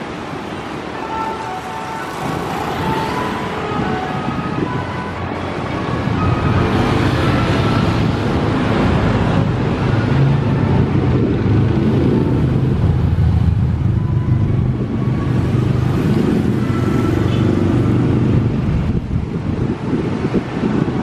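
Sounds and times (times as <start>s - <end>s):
road vehicle rumble: 0.0s - 21.0s.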